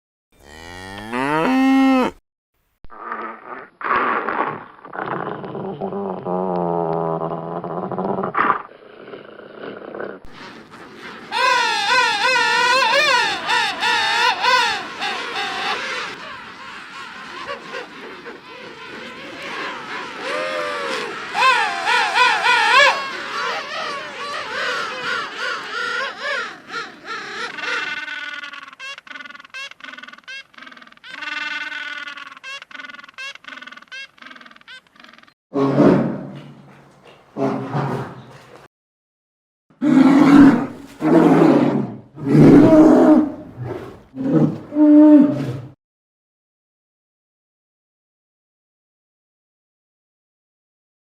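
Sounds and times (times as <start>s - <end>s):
low animal call: 0.4s - 2.2s
high wavering animal call: 11.3s - 35.3s.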